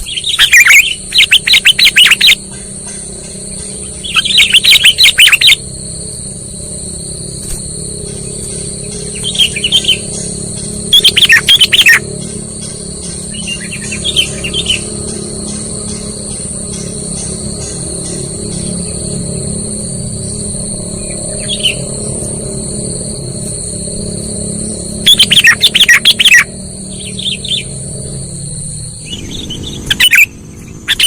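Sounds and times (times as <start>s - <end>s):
bulbul bubbling chirps: 0.0s - 2.4s, 4.0s - 5.6s, 10.9s - 12.0s, 25.1s - 26.5s
high-pitched whine: 0.0s - 31.0s.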